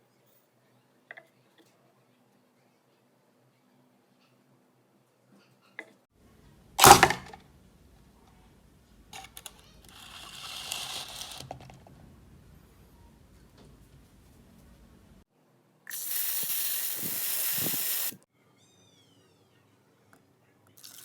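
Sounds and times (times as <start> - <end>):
hiss: 15.9 - 18.2.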